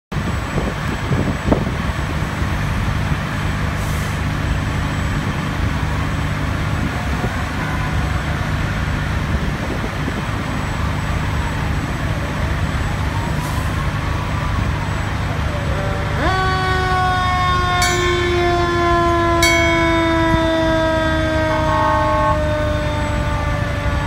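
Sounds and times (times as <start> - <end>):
diesel engines of passing trucks: 0.1 - 24.0
faint siren: 0.2 - 24.0
air brake hiss: 3.8 - 4.2.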